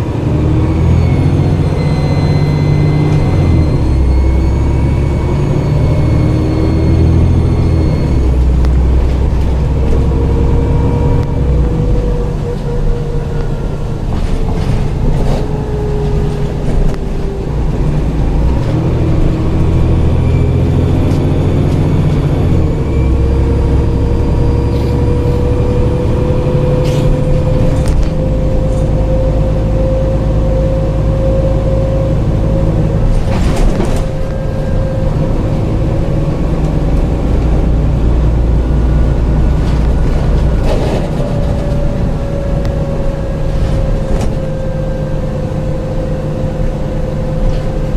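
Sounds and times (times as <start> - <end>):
bus diesel engine: 0.0 - 47.9
turbo whistle: 0.9 - 8.6.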